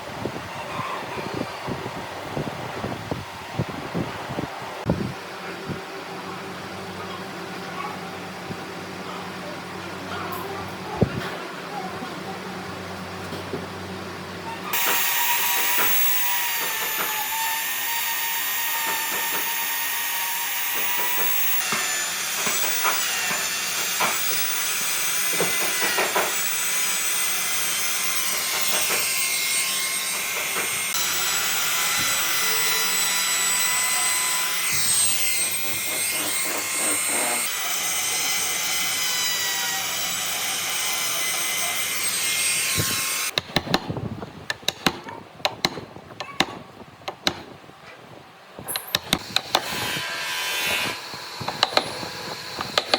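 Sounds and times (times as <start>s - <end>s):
power tool whining against wood: 14.6s - 43.9s, 48.7s - 52.9s.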